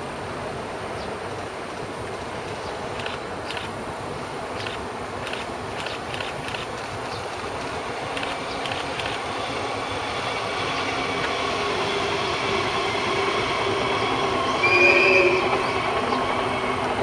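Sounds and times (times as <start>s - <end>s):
train rumble with rail noise: 0.0s - 17.0s
brief tone: 14.6s - 15.6s.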